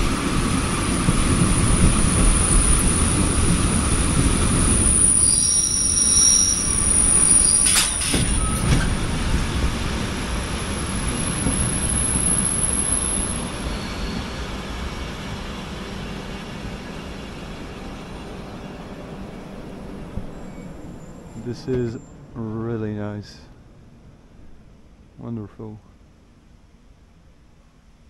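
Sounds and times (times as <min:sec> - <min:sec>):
train wheels rumbling on rails: 0:00.0 - 0:25.1
high-pitched wheel squeal: 0:04.5 - 0:09.1, 0:11.1 - 0:15.1, 0:20.3 - 0:22.2.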